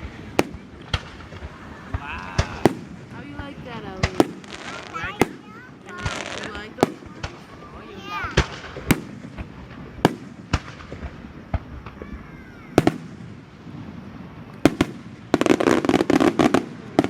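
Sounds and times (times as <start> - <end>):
firework shells bursting: 0.0 - 17.0
rapid firework crackle: 0.0 - 17.0.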